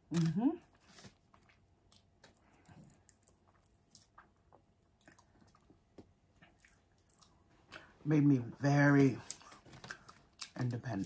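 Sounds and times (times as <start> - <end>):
faint chewing mouth clicks: 1.3 - 7.9.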